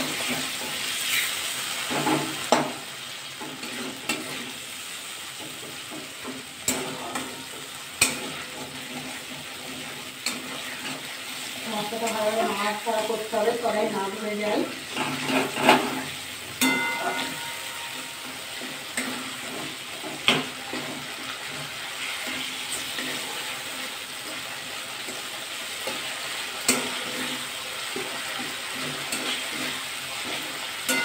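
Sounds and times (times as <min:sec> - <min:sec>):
sauce sizzling in hot oil: 0:00.0 - 0:31.0
metal spatula scraping pan: 0:03.4 - 0:04.6, 0:05.3 - 0:13.2, 0:14.8 - 0:31.0.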